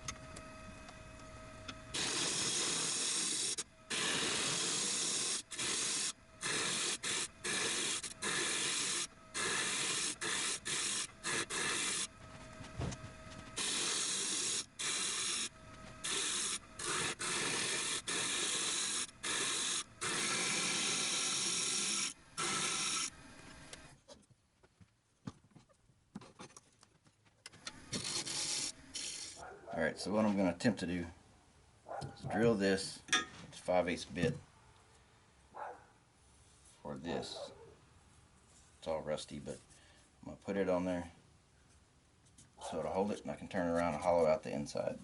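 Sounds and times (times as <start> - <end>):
lathe tool cutting wood: 1.9 - 12.2, 13.6 - 23.7.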